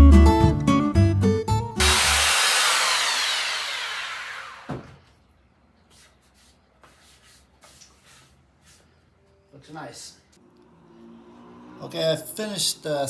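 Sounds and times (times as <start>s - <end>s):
power sander whine: 1.8s - 5.0s.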